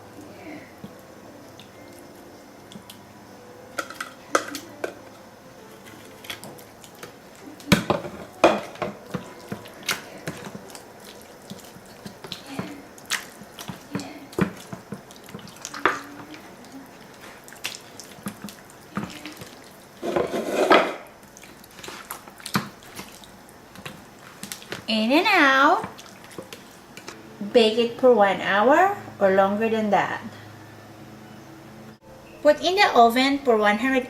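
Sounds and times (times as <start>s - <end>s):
wet squelches: 9.0s - 20.0s, 21.2s - 27.1s.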